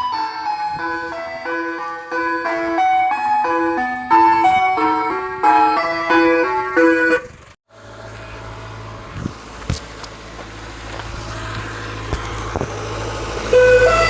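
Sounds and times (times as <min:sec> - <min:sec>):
chiming tune: 0:00.0 - 0:07.2
low motor hum: 0:00.0 - 0:14.0.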